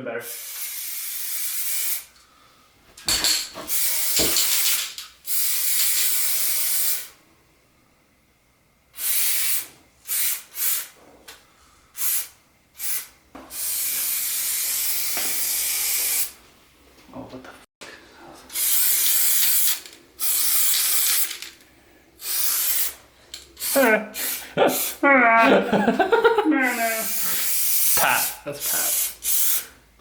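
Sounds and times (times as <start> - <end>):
aerosol spray can spraying: 0.2 - 2.1, 3.7 - 7.1, 9.0 - 10.9, 12.0 - 16.4, 18.5 - 21.5, 22.2 - 23.0, 23.6 - 25.0, 26.7 - 29.7.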